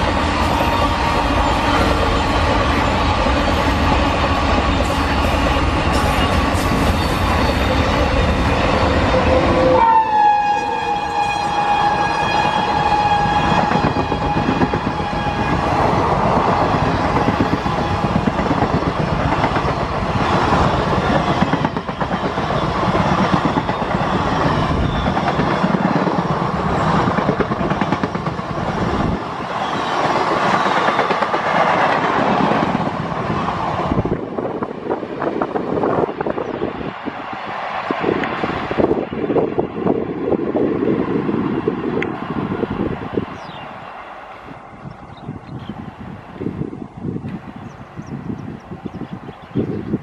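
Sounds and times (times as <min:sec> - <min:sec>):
locomotive horn blast: 0:09.0 - 0:15.9.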